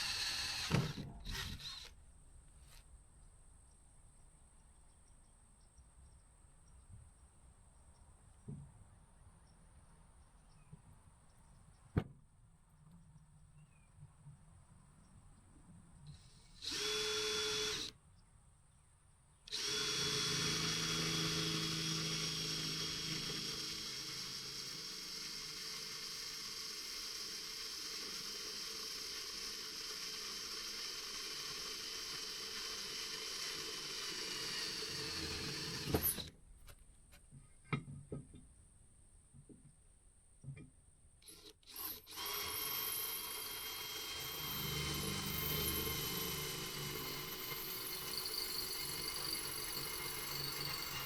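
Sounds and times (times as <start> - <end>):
power drill running: 0.0 - 1.9, 16.1 - 18.0, 19.5 - 36.3, 41.2 - 51.0.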